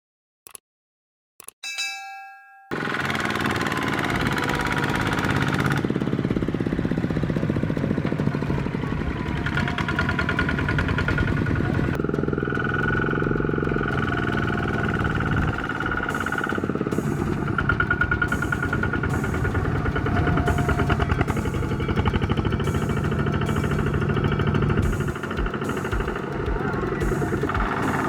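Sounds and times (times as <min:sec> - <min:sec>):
brief ringing tone: 0:01.6 - 0:02.8
tractor engine running under load: 0:02.8 - 0:28.0.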